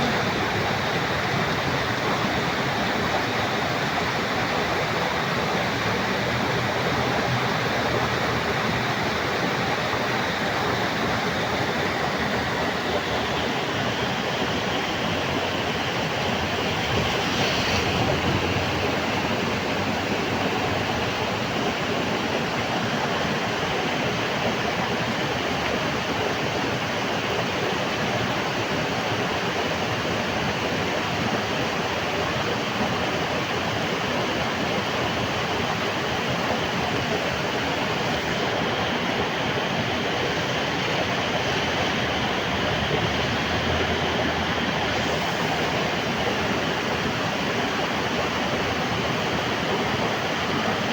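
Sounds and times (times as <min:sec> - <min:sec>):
heavy rain falling: 0:13.6 - 0:22.6, 0:34.6 - 0:50.9.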